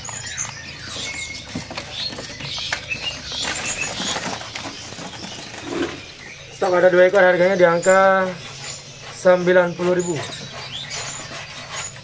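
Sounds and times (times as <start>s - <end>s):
birds fluttering against cage bars: 0.0s - 6.3s
high bird chirps: 0.0s - 12.0s.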